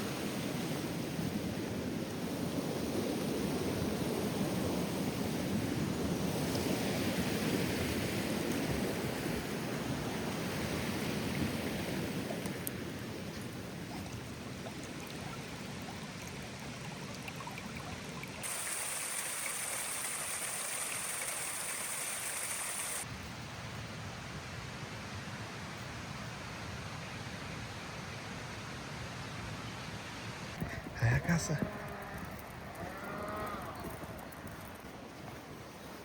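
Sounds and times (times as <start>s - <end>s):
mountain river rushing: 0.0s - 23.1s
bright hiss: 18.4s - 23.0s.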